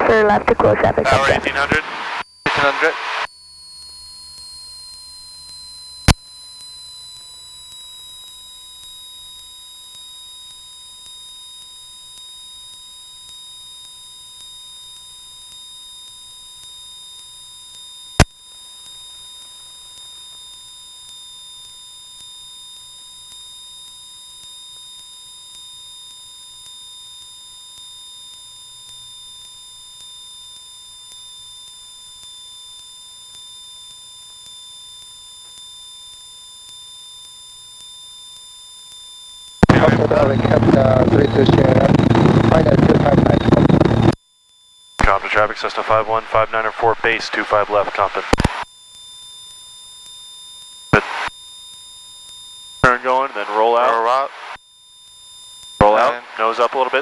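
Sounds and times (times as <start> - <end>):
high electronic whine: 0.0 - 3.3, 39.6 - 44.2, 51.0 - 51.3, 52.8 - 54.6, 55.8 - 57.0
steady low electronic tone: 39.6 - 44.2
sharp clicks: 48.2 - 48.6, 51.0 - 51.3.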